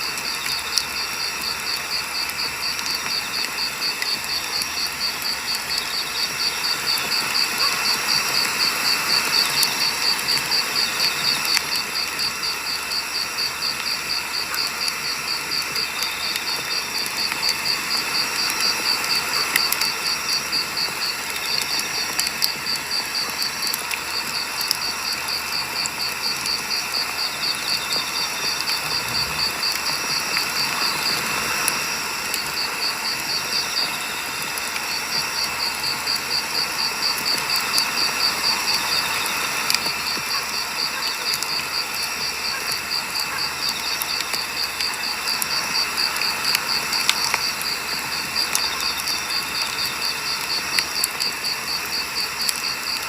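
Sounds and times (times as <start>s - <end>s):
firewood crackling: 0.0s - 37.9s.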